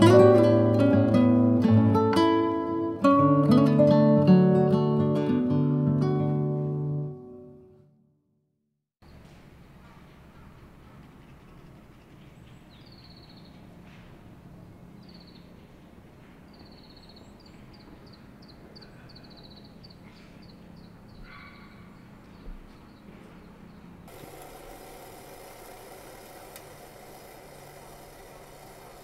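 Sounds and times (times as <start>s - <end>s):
outdoor ambience: 9.0s - 29.0s
birds chirping and trilling: 10.3s - 13.7s, 15.0s - 15.6s, 16.5s - 24.1s.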